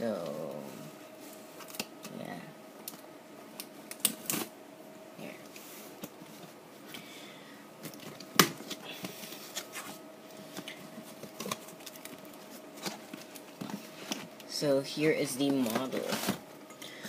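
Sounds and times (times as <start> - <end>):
faint steady hum: 0.0 - 17.0
packaging rustling: 7.8 - 14.5.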